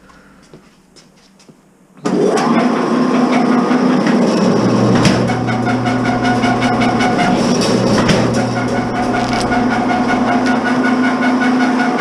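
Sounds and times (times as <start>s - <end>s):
wire stripping machine running: 2.1s - 12.0s
deeper machine hum under load: 3.8s - 12.0s.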